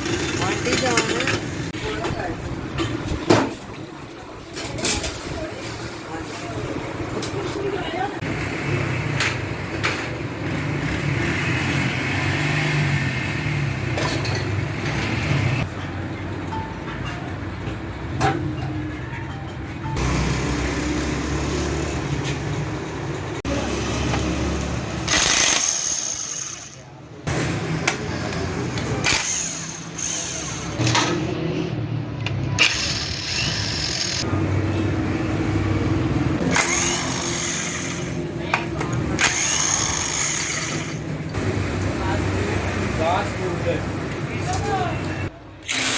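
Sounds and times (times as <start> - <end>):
machine motor humming: 36.4 - 38.2.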